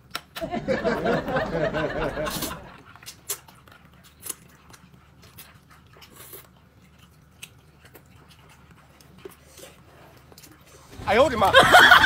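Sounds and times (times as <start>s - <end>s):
person chewing food: 2.1s - 11.0s.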